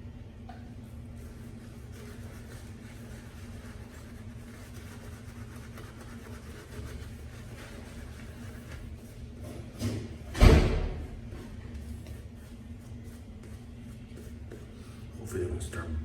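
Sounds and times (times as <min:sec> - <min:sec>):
low mechanical hum: 0:00.0 - 0:16.0
shaving brush swishing lather: 0:01.1 - 0:09.2.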